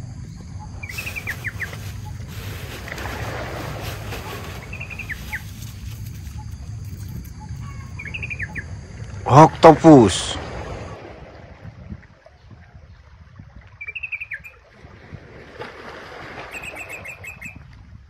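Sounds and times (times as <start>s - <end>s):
bird singing chirps: 0.2s - 2.3s, 4.3s - 8.8s, 13.8s - 14.6s
foam beads rustling in a tub: 0.9s - 6.4s.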